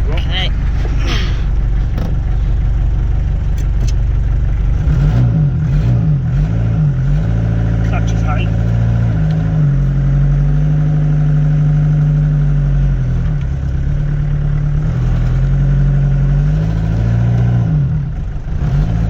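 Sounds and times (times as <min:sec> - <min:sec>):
van engine driving off: 0:00.0 - 0:19.0.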